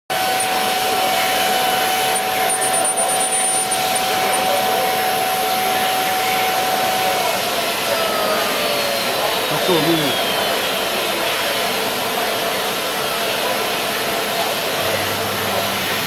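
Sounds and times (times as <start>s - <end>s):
steady tone: 0.1s - 6.8s
milling machine spindle whining: 0.1s - 16.0s.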